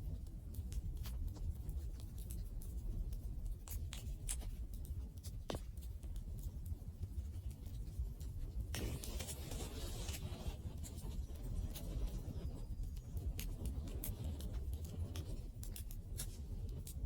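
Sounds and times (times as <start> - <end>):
fire popping and snapping: 0.0 - 17.0
low rumble of fire: 0.0 - 17.0
hissing fire flare-up: 8.6 - 17.0.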